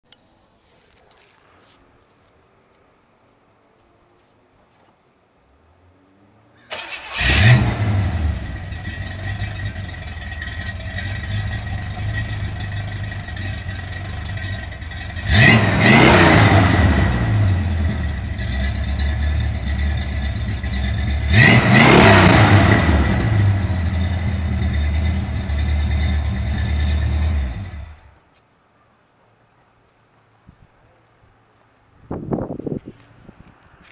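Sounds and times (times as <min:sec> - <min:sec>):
car engine revving and idling: 0:07.0 - 0:28.2.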